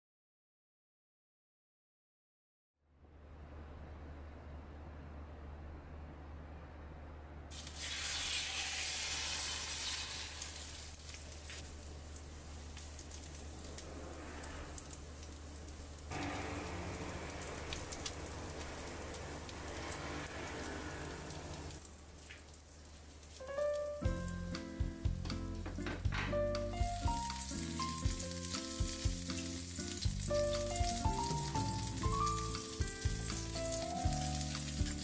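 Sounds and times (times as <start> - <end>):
chicken sizzling in a frying pan: 7.5 - 25.6, 26.7 - 35.0.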